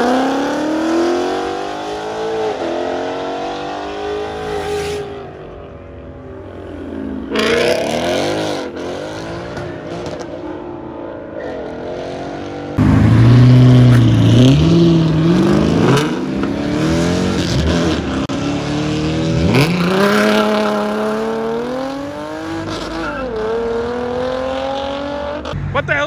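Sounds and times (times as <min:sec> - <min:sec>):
car engine revving: 0:12.8 - 0:25.8.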